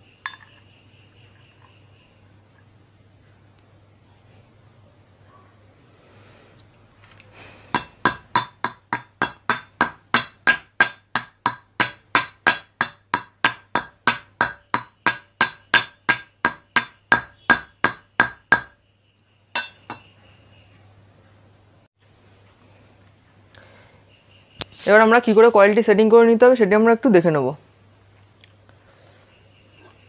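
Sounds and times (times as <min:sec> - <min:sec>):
hammer tapping on metal: 0:07.7 - 0:18.8, 0:19.6 - 0:20.1.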